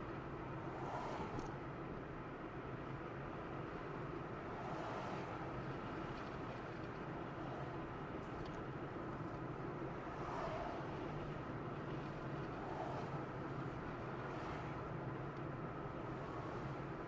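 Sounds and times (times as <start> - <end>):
car driving road noise: 0.0 - 17.0.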